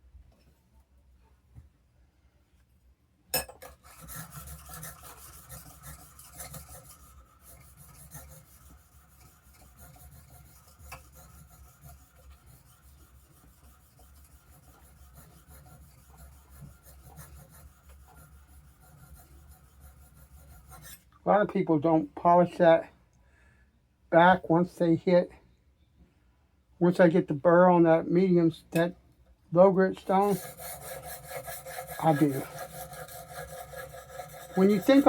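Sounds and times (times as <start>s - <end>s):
blade scraping on sharpening stone: 3.4s - 21.0s, 30.2s - 35.0s.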